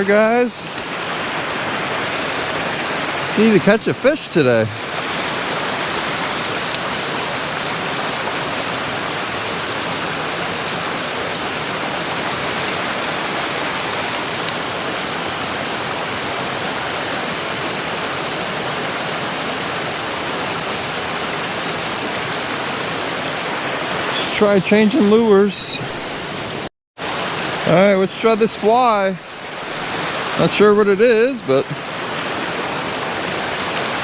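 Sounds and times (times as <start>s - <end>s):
creek water rushing: 0.0s - 34.0s.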